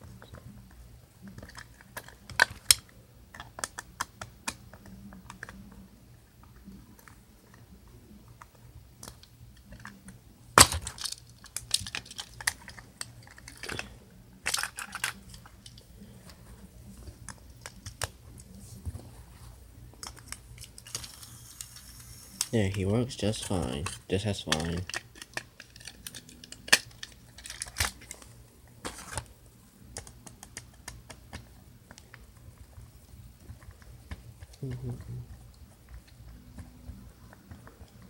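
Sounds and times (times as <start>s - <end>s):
plastic toy train clicks and taps: 23.8s - 27.9s.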